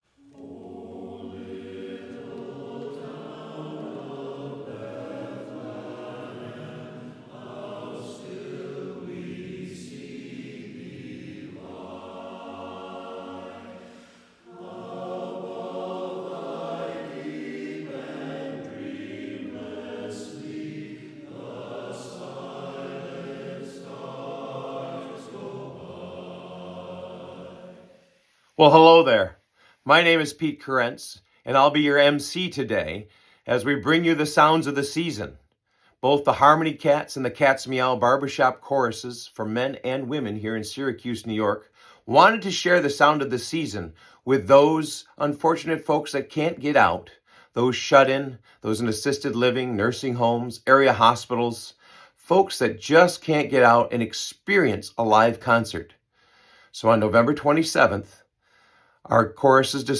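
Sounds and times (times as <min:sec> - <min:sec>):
chorus singing a cappella: 0:00.0 - 0:29.2.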